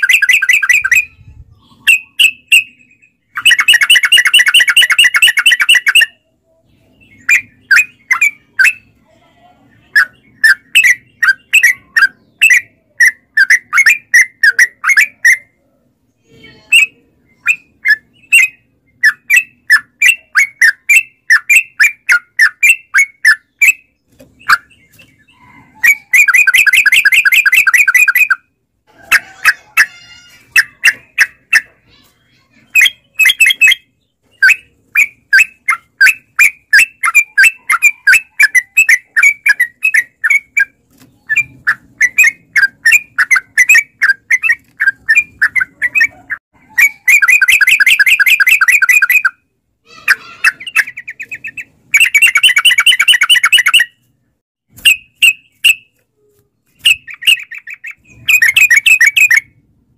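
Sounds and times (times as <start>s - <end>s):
bulbul chattering trills: 9.7s - 15.6s, 16.6s - 54.0s.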